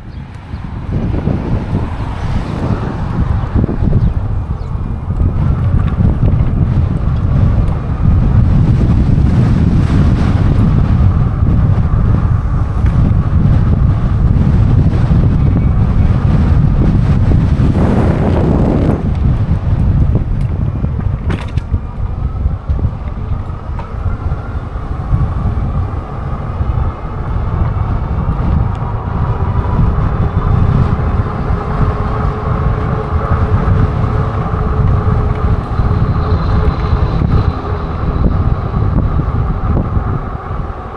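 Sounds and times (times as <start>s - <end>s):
wind buffeting microphone: 0.0s - 40.9s
faint whine: 20.0s - 40.9s.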